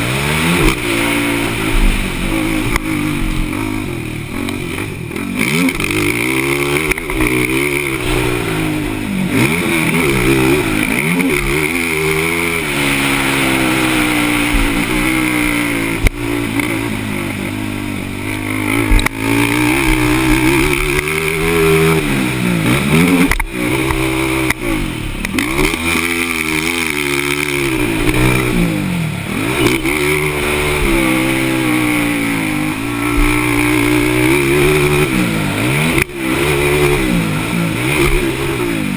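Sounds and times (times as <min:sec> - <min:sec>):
atv engines revving: 0:00.0 - 0:38.9.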